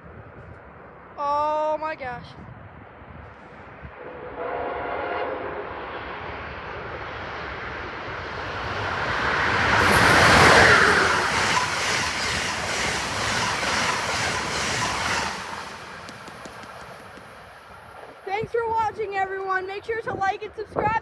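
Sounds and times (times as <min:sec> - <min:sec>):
passenger train passing: 0:02.6 - 0:21.0
wheels clicking over rails: 0:08.2 - 0:18.9.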